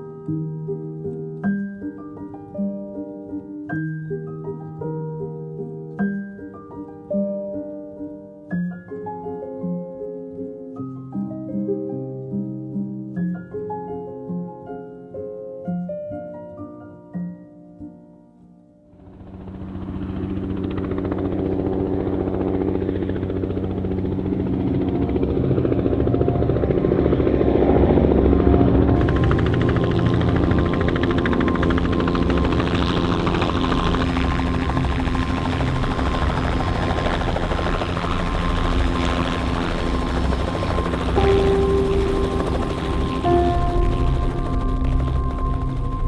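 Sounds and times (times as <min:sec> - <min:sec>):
helicopter rotor and turbine: 0:19.0 - 0:46.0.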